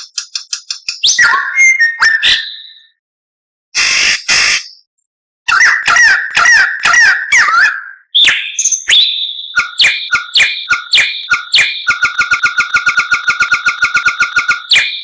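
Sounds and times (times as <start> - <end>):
songbird whistling and rattling: 0.0 - 2.8, 8.2 - 15.0.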